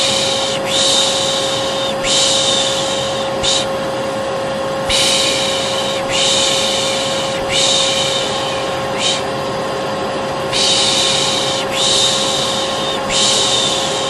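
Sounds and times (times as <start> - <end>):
person shushing: 0.0 - 3.8, 4.8 - 9.3, 10.5 - 14.0
vacuum cleaner running: 0.0 - 14.0.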